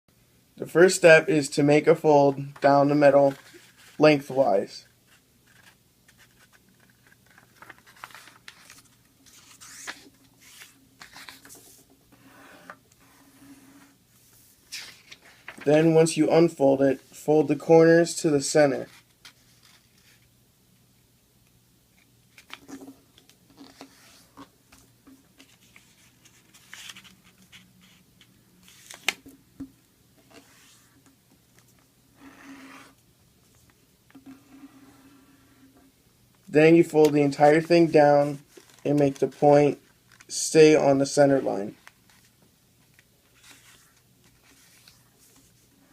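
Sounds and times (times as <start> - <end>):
paper rustling: 2.4 - 11.9, 13.0 - 16.0, 22.0 - 28.0, 28.6 - 29.3, 37.0 - 40.3, 41.6 - 45.7
paper crackle: 5.1 - 11.7
paper rustling and swishing: 5.1 - 16.0, 43.3 - 45.9.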